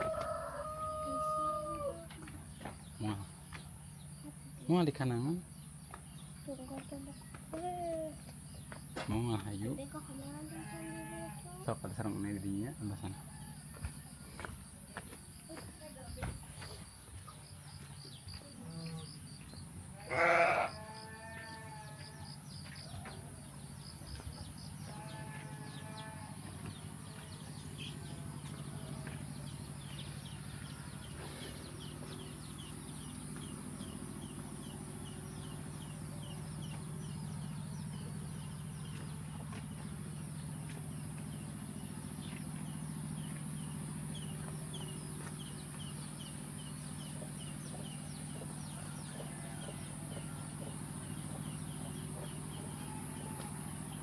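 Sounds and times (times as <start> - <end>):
steady low hum: 0.0 - 54.0
livestock bleating: 10.5 - 11.5, 19.9 - 22.3, 24.8 - 26.6.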